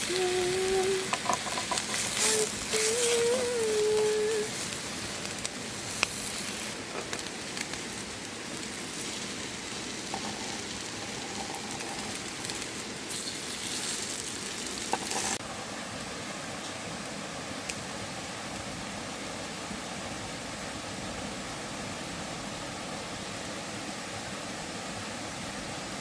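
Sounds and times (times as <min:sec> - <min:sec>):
food sizzling on hot stone: 0:00.0 - 0:15.4
steady hiss: 0:00.0 - 0:26.0.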